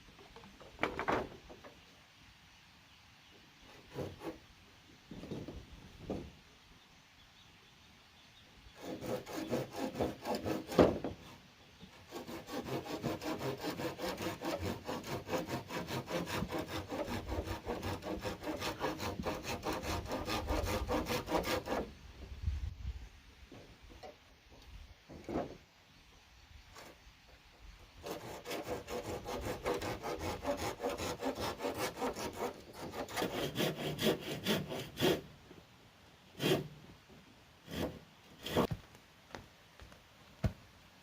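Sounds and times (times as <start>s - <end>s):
hand saw cutting bamboo: 8.8s - 11.1s, 12.1s - 21.9s, 28.0s - 35.3s, 36.4s - 36.7s, 37.7s - 38.7s.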